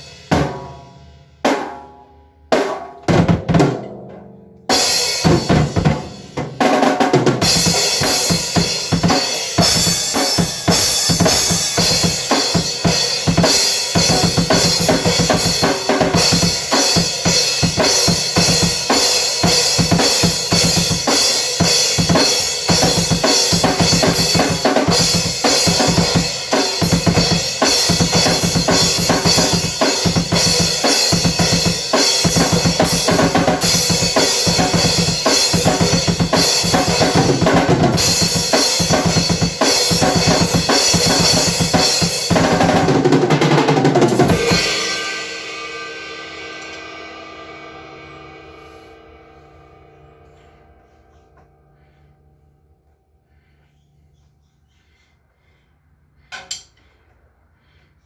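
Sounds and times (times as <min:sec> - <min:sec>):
drum strikes: 0:00.0 - 0:48.6
cymbal wash: 0:44.2 - 0:52.7.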